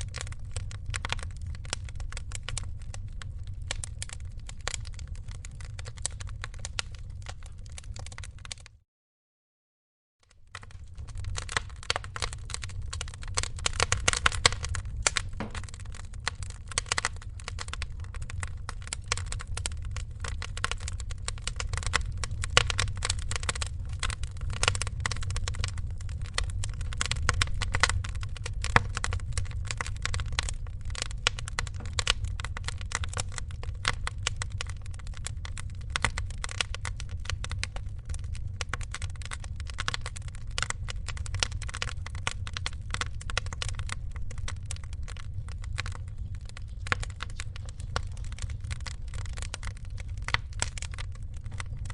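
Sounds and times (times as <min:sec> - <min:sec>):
low rumble of flames: 0:00.0 - 0:08.8, 0:10.3 - 0:51.9
wood fire crackling and popping: 0:00.0 - 0:08.8, 0:10.3 - 0:51.9.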